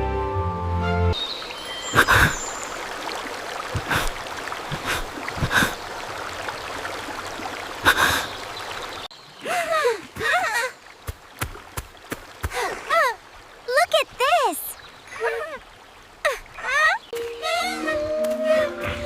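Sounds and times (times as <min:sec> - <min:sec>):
background music: 0:00.0 - 0:01.2, 0:17.2 - 0:19.0
stream water flowing: 0:01.1 - 0:19.0.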